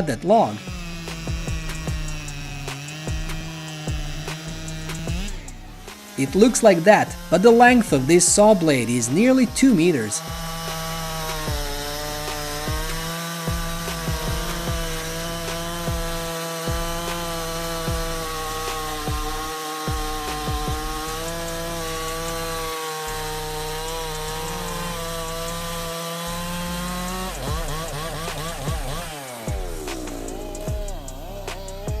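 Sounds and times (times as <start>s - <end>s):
chainsaw cutting log: 0.0s - 32.0s.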